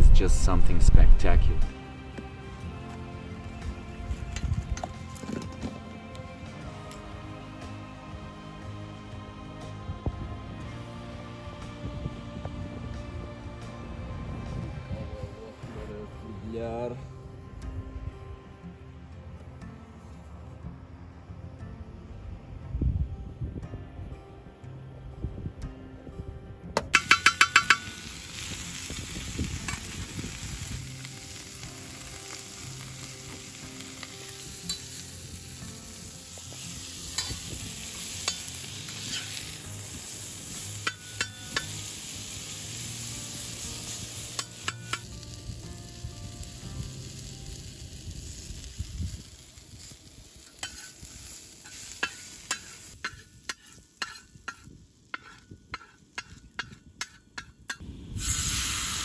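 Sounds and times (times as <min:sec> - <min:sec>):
metal on metal clinks: 0:27.0 - 0:28.0
vegetables sizzling on a steel pan: 0:27.0 - 0:59.0
metal spatula scraping: 0:37.1 - 0:39.5, 0:50.5 - 0:57.8.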